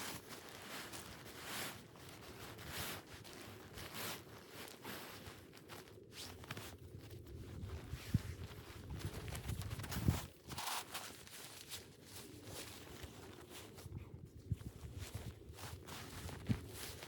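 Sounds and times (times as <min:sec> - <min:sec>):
footsteps crunching through snow: 0:14.6 - 0:17.0.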